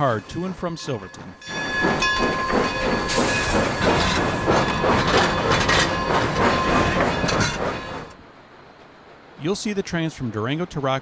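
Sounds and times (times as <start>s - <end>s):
steam hissing: 0.0s - 8.1s
train wheels clattering over rails: 0.0s - 8.2s.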